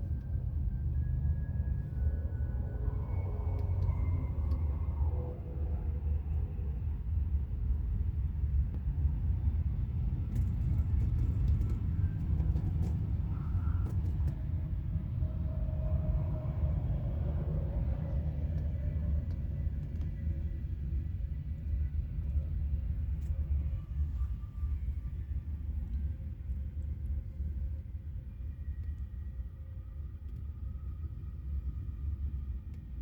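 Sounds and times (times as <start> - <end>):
passing vehicle hum: 0.0 - 8.0
highway traffic rumble: 0.0 - 29.8.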